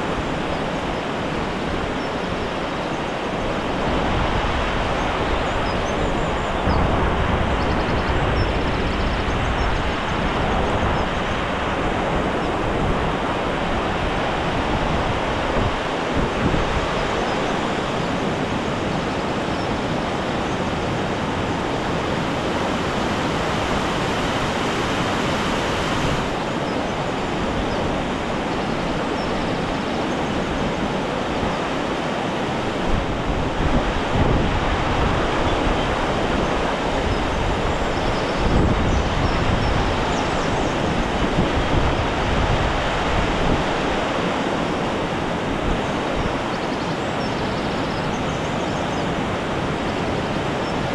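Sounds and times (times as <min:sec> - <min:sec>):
fast-flowing water rushing: 0:00.0 - 0:50.9
wind buffeting microphone: 0:00.0 - 0:50.9.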